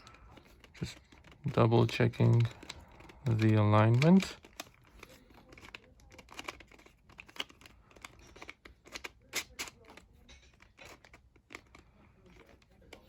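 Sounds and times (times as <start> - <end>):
plastic puzzle pieces clicking: 0.0 - 13.0.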